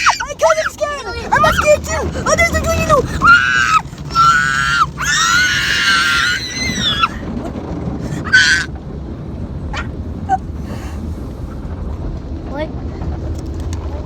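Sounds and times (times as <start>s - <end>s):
high-pitched voice screaming: 0.0s - 7.2s, 8.1s - 8.7s
car wash machinery rumbling: 0.0s - 14.0s.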